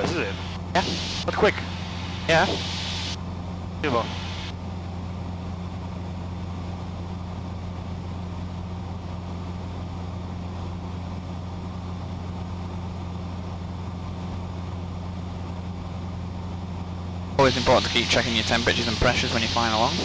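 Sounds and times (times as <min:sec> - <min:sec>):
airplane engine hum in cabin: 0:00.0 - 0:20.0.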